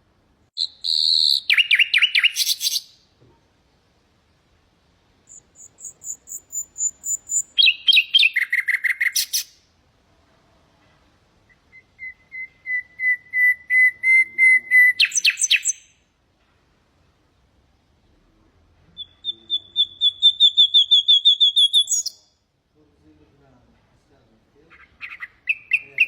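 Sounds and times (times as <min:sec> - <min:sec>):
nightingale singing: 0:00.6 - 0:03.1, 0:05.3 - 0:09.6, 0:11.5 - 0:16.1, 0:18.9 - 0:22.4, 0:24.7 - 0:26.0.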